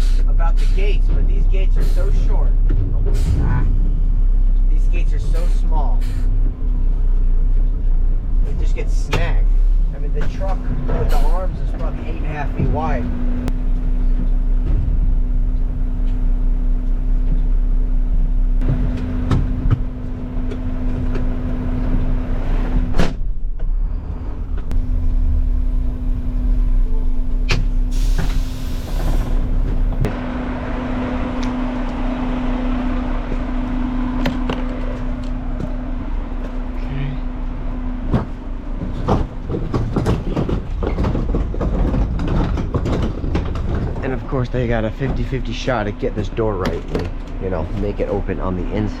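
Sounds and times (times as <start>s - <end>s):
diesel engine humming: 0.0s - 49.0s
metal clanks and knocks: 13.7s - 16.2s, 38.0s - 48.2s.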